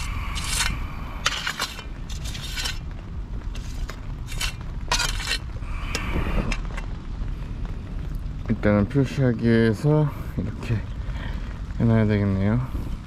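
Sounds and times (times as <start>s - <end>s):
digging tool scraping soil: 0.0s - 2.8s, 3.5s - 5.5s.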